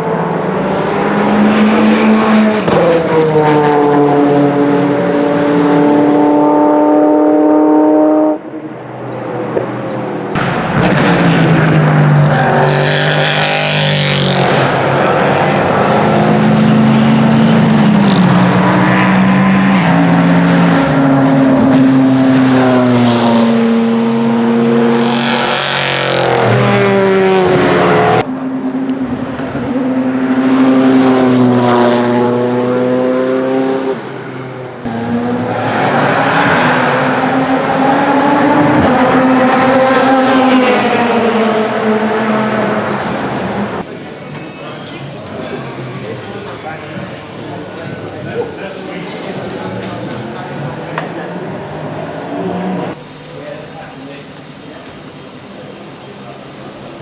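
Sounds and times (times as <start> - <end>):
race car passing at speed: 0.0 - 57.0.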